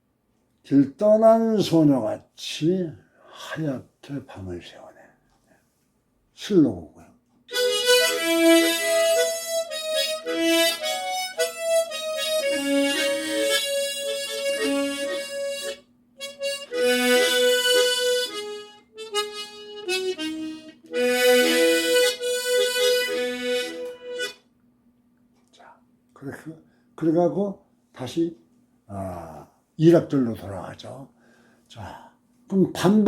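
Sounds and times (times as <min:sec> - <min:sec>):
short low harmonica notes: 0:07.5 - 0:24.4
harmonica playing slow melody: 0:07.5 - 0:24.5.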